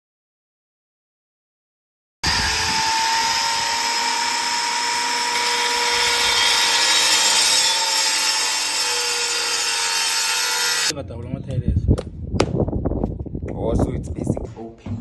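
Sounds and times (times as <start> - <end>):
power tool cutting into plaster: 2.2 - 10.9.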